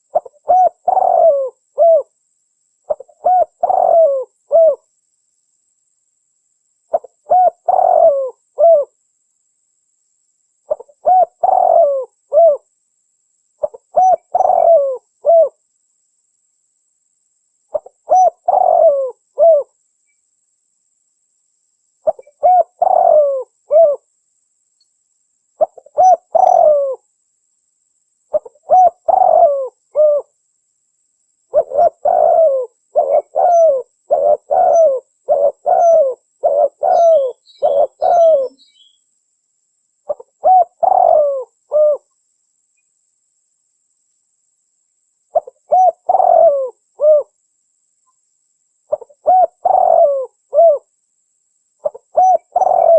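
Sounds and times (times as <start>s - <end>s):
dove cooing: 0.0s - 2.1s, 2.9s - 4.9s, 6.9s - 9.0s, 10.7s - 12.6s, 13.6s - 15.6s, 17.7s - 19.8s, 22.0s - 24.0s, 25.6s - 27.0s, 28.3s - 30.3s, 31.5s - 39.0s, 40.1s - 42.1s, 45.3s - 47.4s, 48.9s - 50.9s, 51.8s - 52.9s
small bird chirping: 0.0s - 2.2s, 2.8s - 4.9s, 6.9s - 9.0s, 10.6s - 12.6s, 13.5s - 15.6s, 17.7s - 20.4s, 22.0s - 24.1s, 25.6s - 27.1s, 28.2s - 30.4s, 31.5s - 39.2s, 40.0s - 43.0s, 45.3s - 47.4s, 48.0s - 50.9s, 51.8s - 52.9s.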